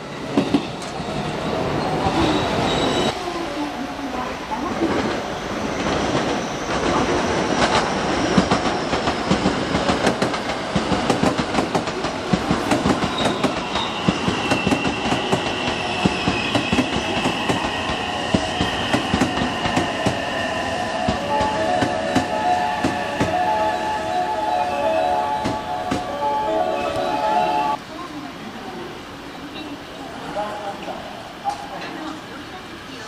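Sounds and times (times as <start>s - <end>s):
high wheel squeal: 1.8s - 3.2s, 13.0s - 24.6s
train wheels clicking on rail joints: 5.8s - 20.3s.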